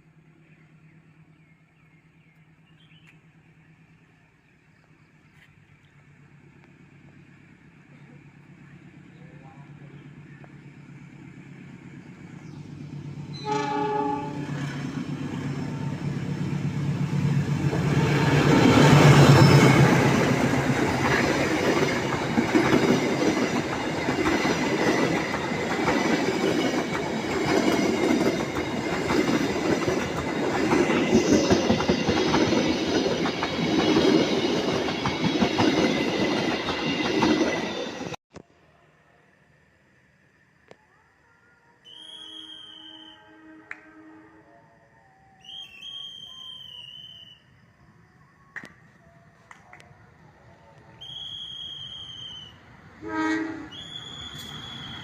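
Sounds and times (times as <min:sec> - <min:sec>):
locomotive passing: 0:00.0 - 0:40.2
train horn: 0:13.3 - 0:14.9, 0:41.9 - 0:46.7, 0:51.3 - 0:55.0.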